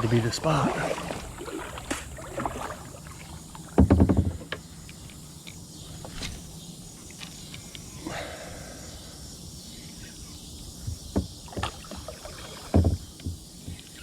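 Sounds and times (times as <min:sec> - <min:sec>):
loud clattering knock: 0:03.8 - 0:04.4, 0:12.8 - 0:13.9.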